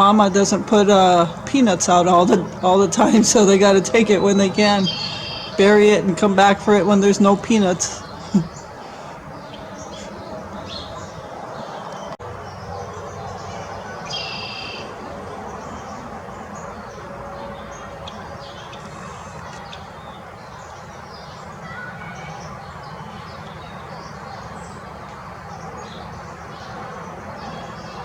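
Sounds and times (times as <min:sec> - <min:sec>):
harsh bird call: 0:00.0 - 0:11.8, 0:13.4 - 0:15.0
birds chirping: 0:00.0 - 0:28.0
outdoor background noise: 0:00.0 - 0:28.0.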